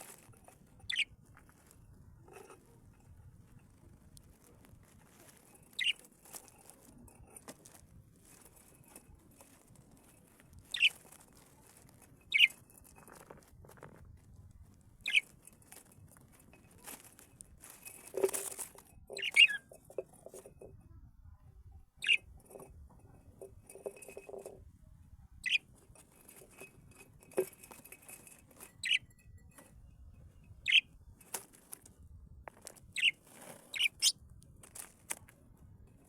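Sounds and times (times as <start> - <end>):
wing fluttering: 0.0 - 1.1, 5.2 - 7.1, 8.2 - 14.0, 15.0 - 16.1, 17.6 - 20.6, 22.0 - 22.3, 27.3 - 29.0, 32.9 - 35.0
scratchy rattling: 0.0 - 20.8, 22.0 - 24.7
birds chirping: 0.8 - 1.1, 5.8 - 6.0, 10.6 - 11.0, 12.3 - 12.6, 15.0 - 15.3, 19.1 - 19.8, 22.0 - 22.2, 25.4 - 25.6, 28.8 - 29.2, 30.6 - 30.8, 32.9 - 34.1.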